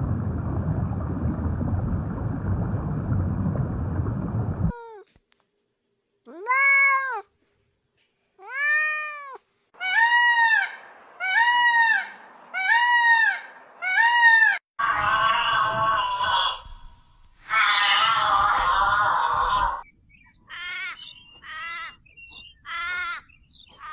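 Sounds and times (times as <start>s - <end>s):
cat meowing: 6.3s - 7.3s, 8.4s - 9.4s
rough animal call: 9.8s - 19.8s.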